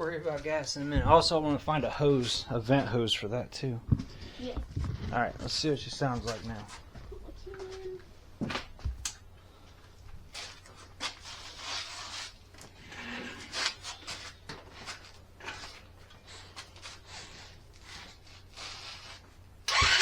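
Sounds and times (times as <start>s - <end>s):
scraping and rubbing handling noises: 4.0s - 7.0s, 10.2s - 19.5s.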